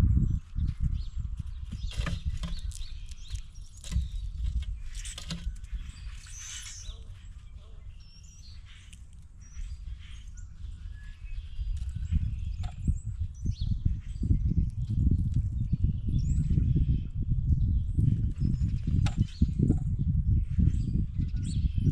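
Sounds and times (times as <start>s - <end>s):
wind rumble on microphone: 0.0s - 21.9s
bird calls: 1.6s - 14.5s.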